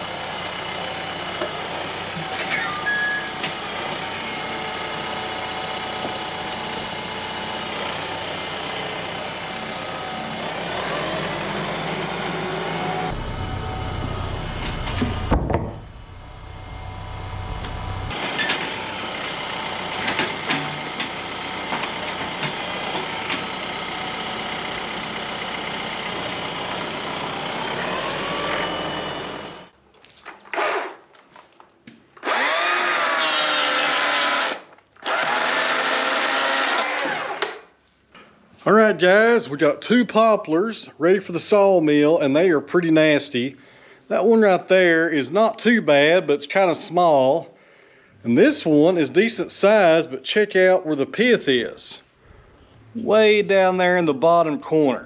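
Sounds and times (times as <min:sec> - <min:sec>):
power tool running loudly: 0:00.0 - 0:29.7, 0:30.6 - 0:31.0, 0:32.2 - 0:37.7
engine running steadily: 0:00.0 - 0:29.8.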